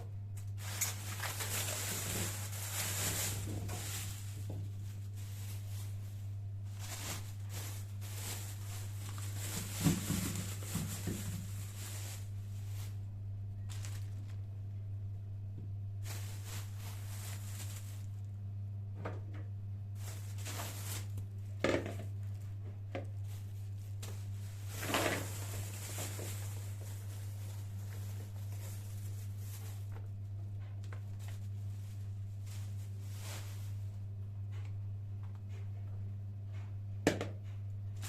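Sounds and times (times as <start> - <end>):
steady low hum: 0.0 - 38.0
rustling: 0.4 - 13.0, 13.6 - 14.4, 16.0 - 18.3, 20.0 - 21.3, 23.1 - 34.0.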